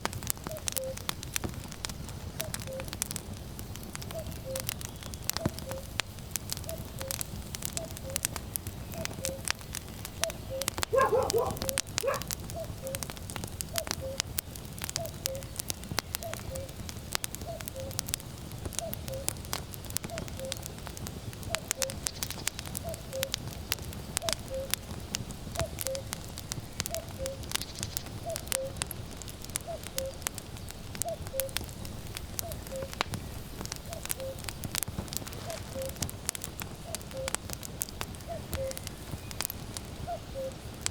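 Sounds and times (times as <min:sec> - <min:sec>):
wood fire crackling and popping: 0:00.0 - 0:40.9
cuckoo calling: 0:00.5 - 0:01.0, 0:04.1 - 0:04.7, 0:09.0 - 0:09.5, 0:10.2 - 0:13.0, 0:13.7 - 0:14.3, 0:15.0 - 0:16.8, 0:17.4 - 0:18.0, 0:24.2 - 0:24.8, 0:25.6 - 0:26.1, 0:26.9 - 0:28.8, 0:29.6 - 0:30.2, 0:32.4 - 0:33.0, 0:33.8 - 0:34.6, 0:35.3 - 0:36.0, 0:36.8 - 0:37.4, 0:38.2 - 0:38.9, 0:40.1 - 0:40.6.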